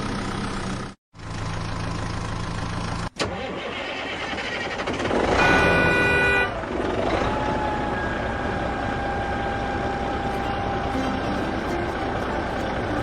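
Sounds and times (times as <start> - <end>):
vehicle engine rumbling: 0.0 - 13.0
loud multi-tone sound: 10.2 - 13.0.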